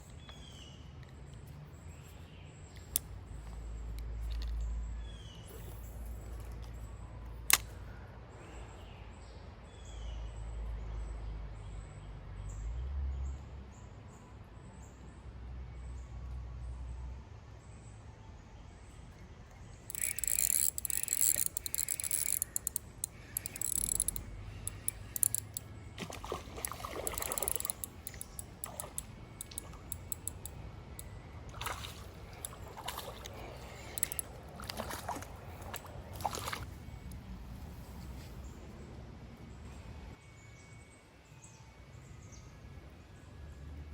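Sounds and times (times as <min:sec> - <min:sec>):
small birds chirping: 0:19.6 - 0:38.9
sharp clicks: 0:19.9 - 0:25.7, 0:26.6 - 0:31.1, 0:33.9 - 0:34.8.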